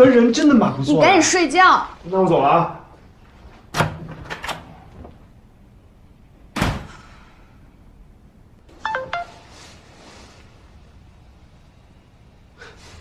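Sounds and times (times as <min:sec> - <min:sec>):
phone message chime: 0:08.8 - 0:09.8.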